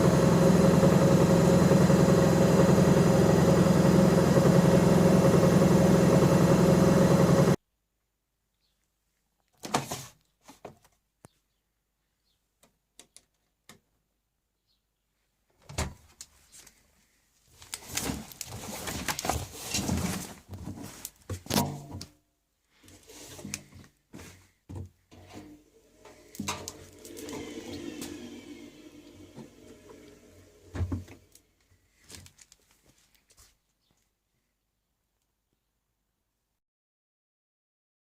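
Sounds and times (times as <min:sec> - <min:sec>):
washing machine humming: 0:00.0 - 0:07.6, 0:25.1 - 0:31.4.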